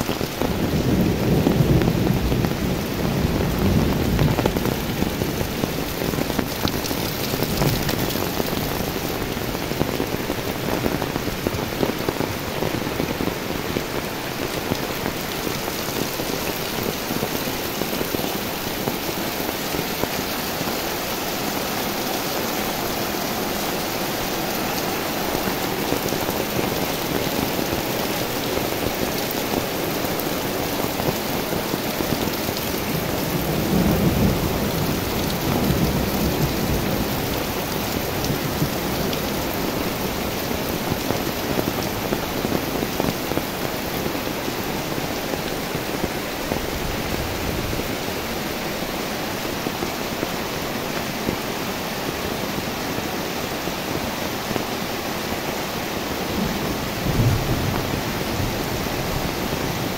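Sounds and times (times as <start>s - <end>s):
steady rain falling: 0.0s - 59.9s
thunder rumbling: 0.2s - 42.8s, 56.3s - 59.9s.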